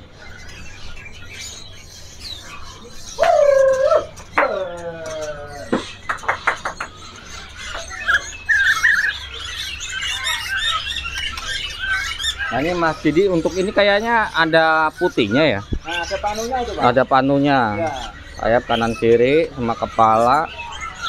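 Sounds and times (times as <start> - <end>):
caged songbirds chirping: 0.0 - 21.0
loud drawn-out bird calls: 0.0 - 21.0.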